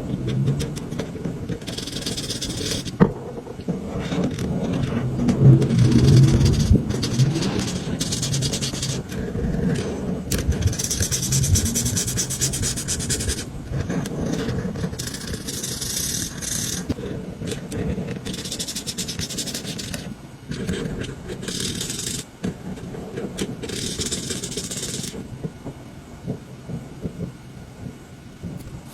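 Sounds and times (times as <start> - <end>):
marker rubbing on paper: 1.6 - 2.9, 5.7 - 9.2, 9.8 - 17.0, 18.2 - 22.3, 23.6 - 25.2.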